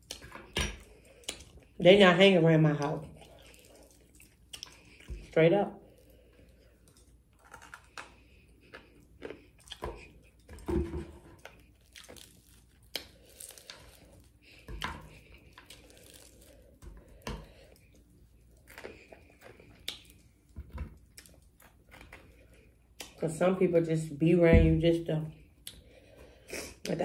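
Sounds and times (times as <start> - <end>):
chewing and crunching fried food: 0.0 - 23.3
breading crackling as torn: 11.4 - 16.8.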